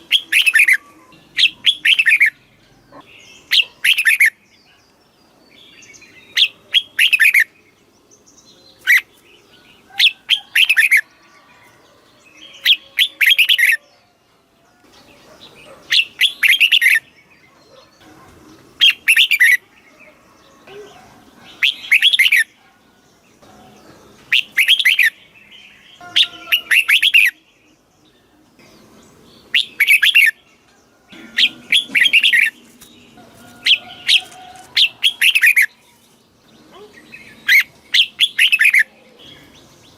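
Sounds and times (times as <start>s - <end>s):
bird singing warbled phrases: 0.0s - 39.9s.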